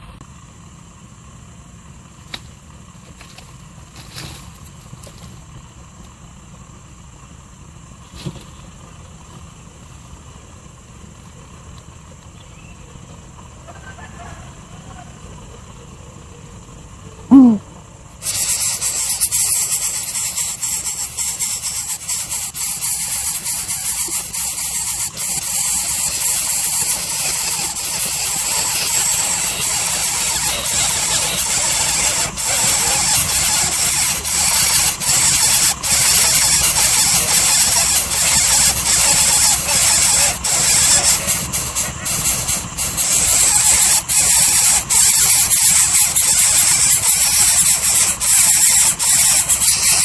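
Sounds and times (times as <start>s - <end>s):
loud high hiss: 17.3s - 50.0s.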